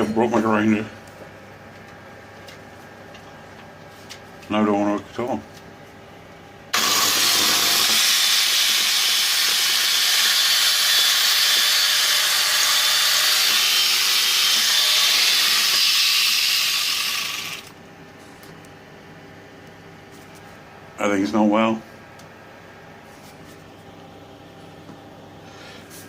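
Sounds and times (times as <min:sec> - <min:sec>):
angle grinder running: 0:06.8 - 0:17.7.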